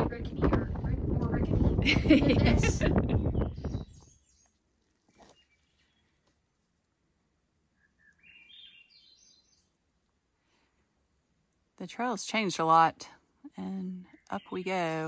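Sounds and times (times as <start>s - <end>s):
songbird singing rising notes: 3.0s - 6.3s, 7.6s - 9.9s.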